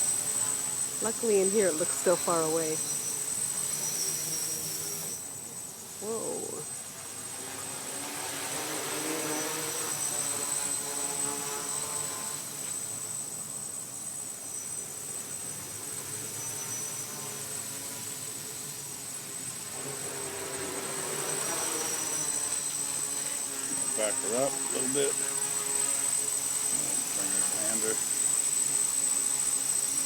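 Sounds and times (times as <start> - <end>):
steady high-pitched tone: 0.0 - 5.4, 23.7 - 25.2
drone propellers buzzing: 0.0 - 30.0.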